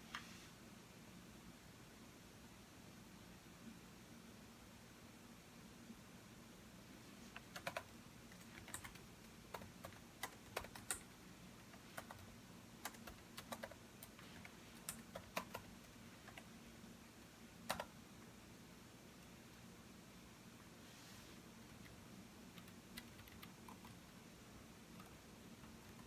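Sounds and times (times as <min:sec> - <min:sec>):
typing on computer keyboard: 0:07.4 - 0:16.5, 0:17.7 - 0:17.9, 0:22.6 - 0:24.0.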